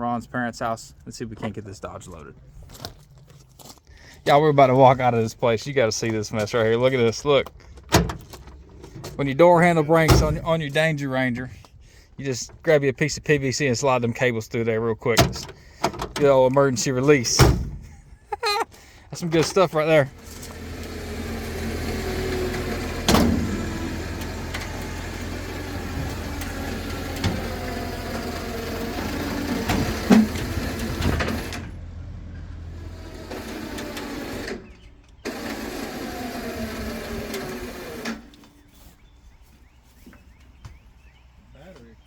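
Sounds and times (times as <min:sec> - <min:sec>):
vehicle engine revving: 0:19.9 - 0:38.3.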